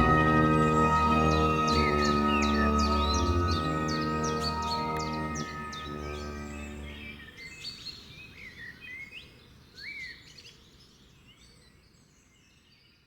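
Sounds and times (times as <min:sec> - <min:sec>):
background music: 0:00.0 - 0:07.5
wild birds chirping and whistling: 0:00.0 - 0:10.7.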